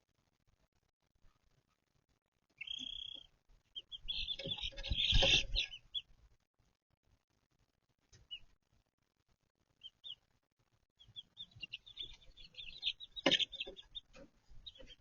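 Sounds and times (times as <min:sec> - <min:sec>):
chicks peeping: 0:02.5 - 0:06.3, 0:08.0 - 0:08.6, 0:09.6 - 0:15.0.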